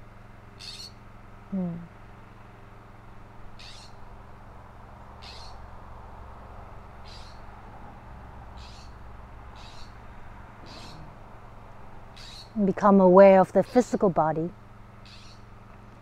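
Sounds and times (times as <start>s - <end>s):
low background rush: 0.0s - 16.0s
bird high sharp calls: 0.6s - 1.0s, 3.6s - 4.1s, 5.2s - 5.7s, 7.0s - 7.5s, 8.6s - 10.0s, 10.6s - 11.2s, 12.1s - 12.6s, 15.0s - 15.5s.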